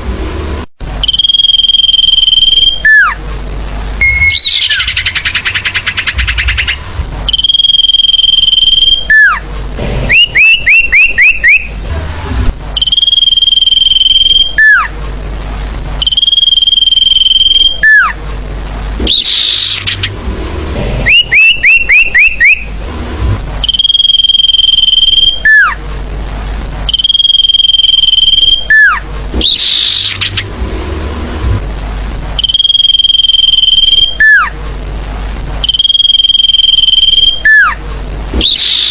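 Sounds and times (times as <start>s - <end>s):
bird song with high whistles: 1.0s - 3.2s, 4.0s - 9.4s, 10.1s - 11.7s, 12.8s - 14.9s, 16.0s - 18.2s, 19.1s - 20.1s, 21.1s - 22.7s, 23.6s - 25.8s, 26.9s - 30.4s, 32.4s - 34.5s, 35.6s - 37.8s, 38.4s - 38.9s
rising bird chirps: 4.0s - 9.4s, 10.1s - 11.8s, 19.0s - 20.2s, 21.0s - 22.8s, 23.6s - 25.8s, 26.9s - 30.5s.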